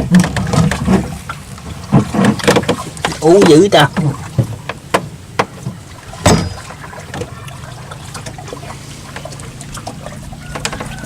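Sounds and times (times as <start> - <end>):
water splashing and trickling: 0.0 - 11.0
sharp knocks: 1.9 - 7.3.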